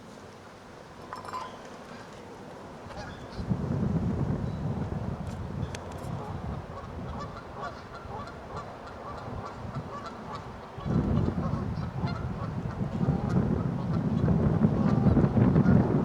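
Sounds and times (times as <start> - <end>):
wind buffeting microphone: 2.8 - 16.0
geese honking: 6.2 - 13.3.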